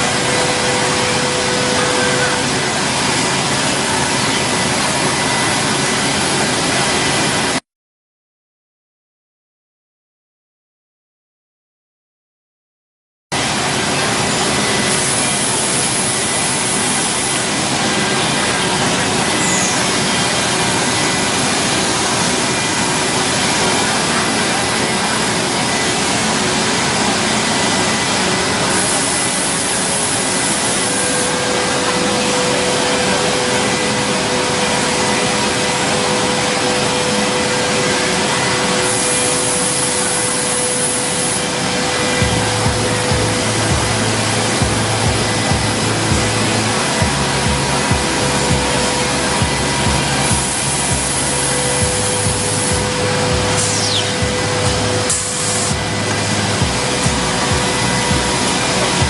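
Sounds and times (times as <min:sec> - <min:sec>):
cnc router running: 0:00.0 - 0:07.6, 0:13.4 - 0:59.0
steady hum tone: 0:00.0 - 0:07.6, 0:13.4 - 0:59.0
bright hiss: 0:38.8 - 0:59.0.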